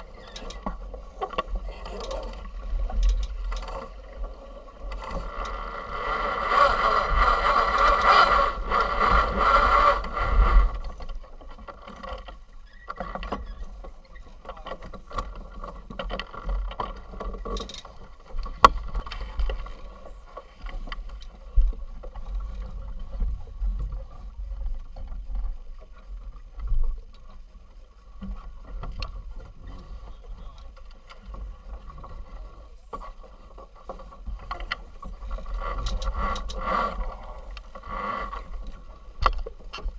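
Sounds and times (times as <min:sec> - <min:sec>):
sharp knocks and creaks: 0:00.0 - 0:39.9.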